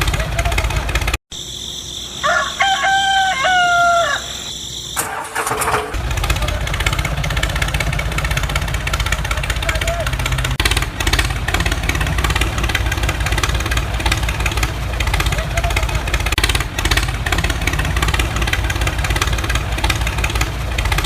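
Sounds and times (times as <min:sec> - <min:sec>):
motor rumbling: 0:00.0 - 0:01.2, 0:05.0 - 0:21.0
rooster crowing: 0:01.8 - 0:05.7.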